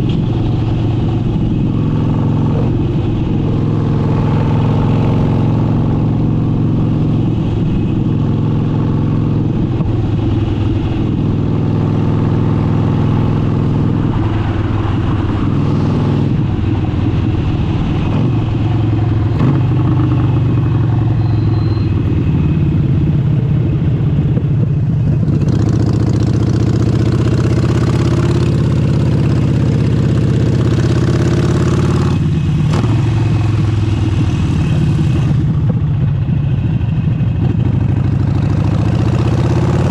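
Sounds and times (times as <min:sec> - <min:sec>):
wind and road hiss: 0:00.0 - 0:21.1, 0:27.1 - 0:38.2
motorcycle engine running: 0:00.0 - 0:39.9.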